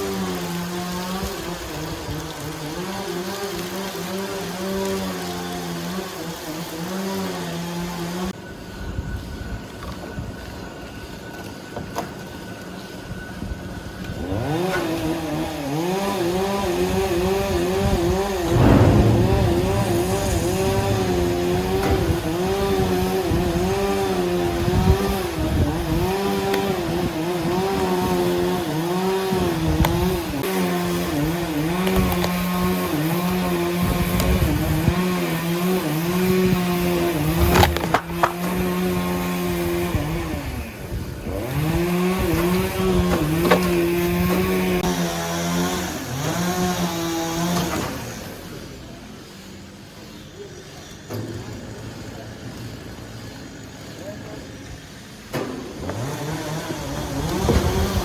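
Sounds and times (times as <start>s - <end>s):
chainsaw cutting log: 0.0s - 8.3s, 14.2s - 18.7s, 22.6s - 48.4s, 52.6s - 58.0s
sharp knocks: 18.4s - 22.8s.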